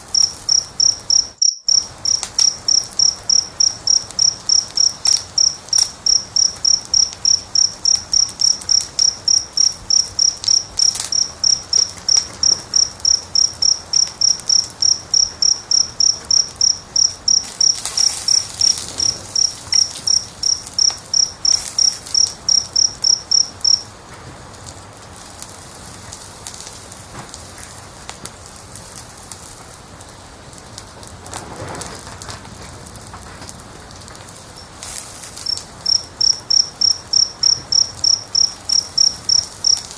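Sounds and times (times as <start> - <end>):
cricket chirping: 0.0 - 23.9, 34.4 - 39.9
wood fire crackling and popping: 0.0 - 39.9.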